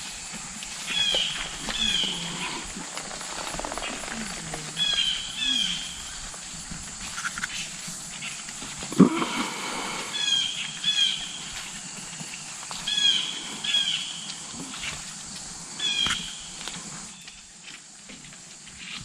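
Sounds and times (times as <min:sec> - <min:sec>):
high-pitched animal calls: 0:03.7 - 0:06.1.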